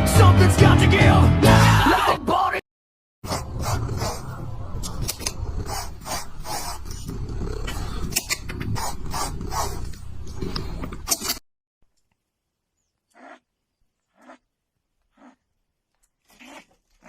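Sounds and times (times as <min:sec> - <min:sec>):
animal growling: 0:03.3 - 0:11.1, 0:16.2 - 0:17.0.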